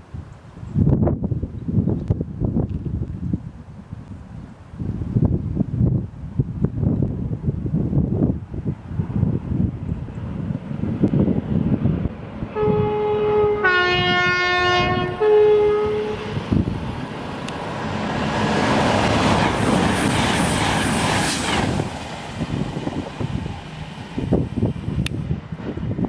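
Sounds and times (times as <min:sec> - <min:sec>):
rush of train wheels and air: 0:00.0 - 0:26.0
two-tone train horn: 0:12.5 - 0:16.4.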